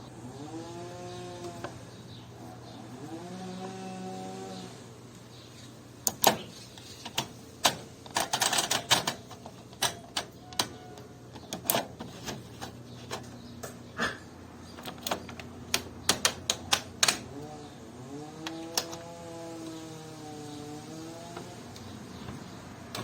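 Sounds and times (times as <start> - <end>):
washing machine clicks and clacks: 7.1 - 10.9.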